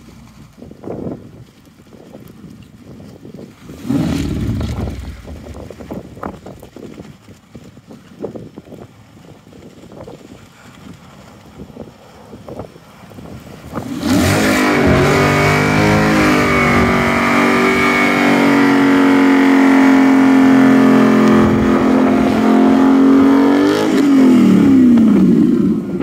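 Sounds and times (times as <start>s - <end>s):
car engine revving: 14.0s - 25.2s.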